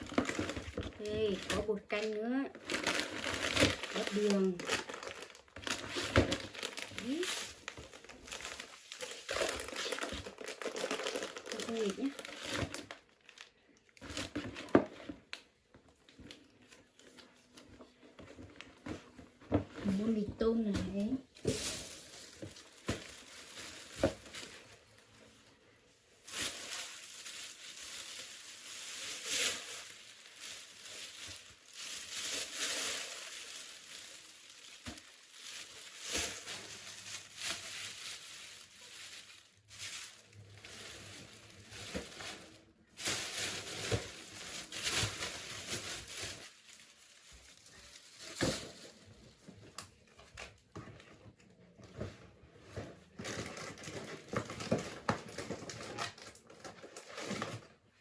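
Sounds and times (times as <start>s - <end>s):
plastic packaging crinkling: 0.0s - 50.8s, 53.1s - 58.0s.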